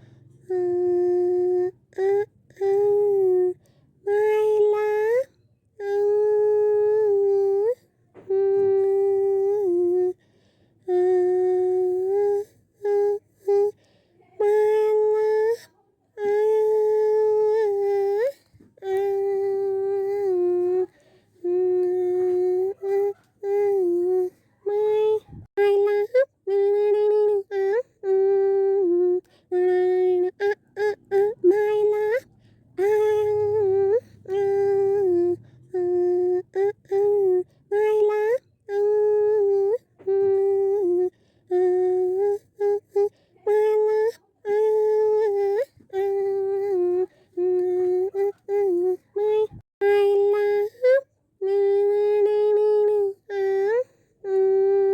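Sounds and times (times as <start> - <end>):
high-pitched voice humming: 0.0 - 10.2, 10.8 - 54.9.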